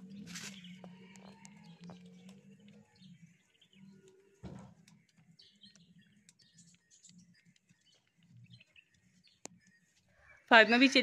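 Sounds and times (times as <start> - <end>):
faint birds chirping: 0.0 - 11.0
short thump: 4.4 - 4.8.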